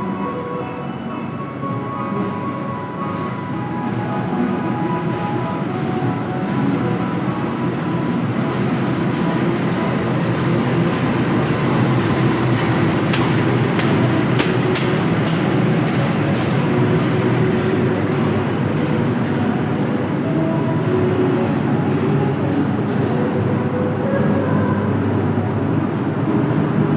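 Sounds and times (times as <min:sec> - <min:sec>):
train wheels rumbling on rails: 0:00.0 - 0:26.9
wheels clicking over rail joints: 0:09.8 - 0:17.0.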